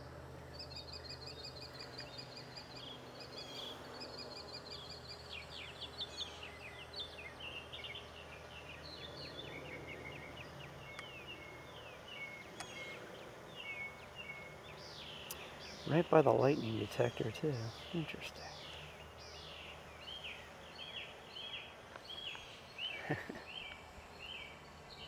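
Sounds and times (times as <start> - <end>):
birds chirping and singing: 0.0 - 25.0
outdoor background noise: 0.0 - 25.0.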